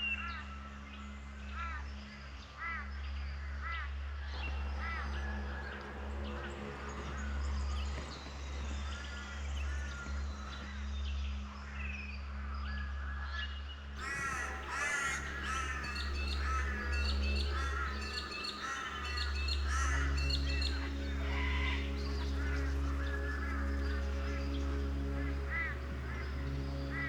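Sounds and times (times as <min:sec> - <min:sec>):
birds calling harshly: 0:04.4 - 0:10.6, 0:14.0 - 0:27.0
steady low hum: 0:14.0 - 0:27.0.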